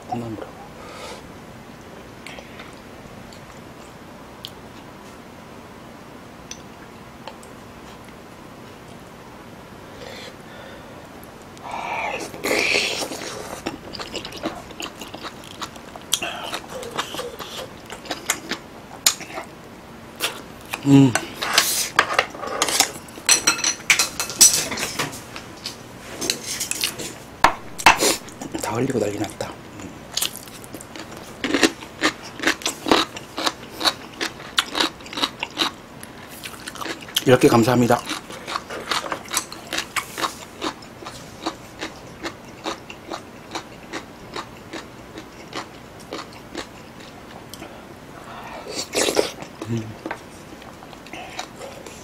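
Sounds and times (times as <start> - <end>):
person chewing food: 11.6 - 19.5, 26.3 - 37.3, 38.0 - 47.8, 48.4 - 52.0
utensils clinking against bowls: 21.2 - 25.1.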